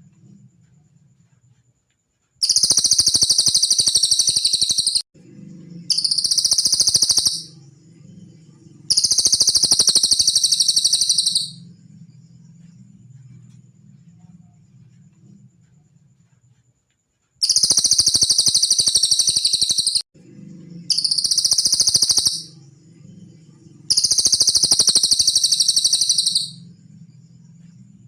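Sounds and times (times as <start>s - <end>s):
faint low hum: 0.0s - 3.2s, 5.2s - 18.2s, 20.2s - 28.0s
bird high-pitched trills: 2.4s - 5.0s, 5.8s - 7.6s, 8.4s - 11.7s, 17.4s - 20.0s, 20.8s - 22.7s, 23.4s - 26.7s.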